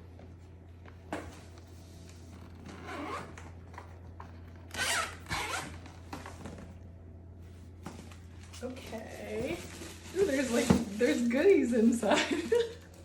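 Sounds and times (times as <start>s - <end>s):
fabric zipper pulled open: 2.5s - 3.4s, 4.7s - 5.8s.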